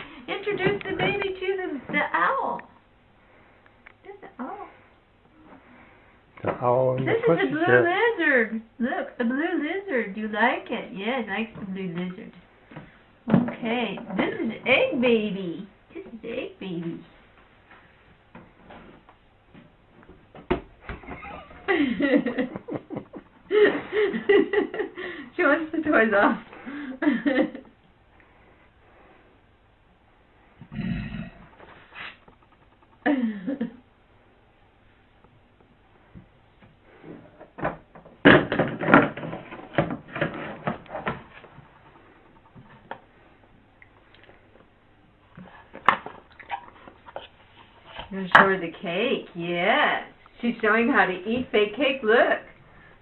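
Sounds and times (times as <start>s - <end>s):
person laughing: 21.0s - 25.1s, 33.0s - 33.8s.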